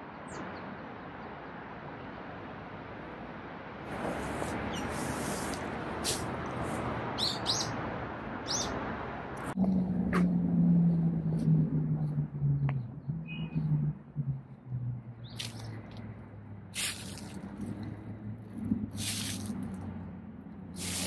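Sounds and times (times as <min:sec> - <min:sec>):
small birds chirping: 0:04.7 - 0:05.0, 0:07.2 - 0:07.8, 0:08.4 - 0:08.8, 0:15.2 - 0:15.9.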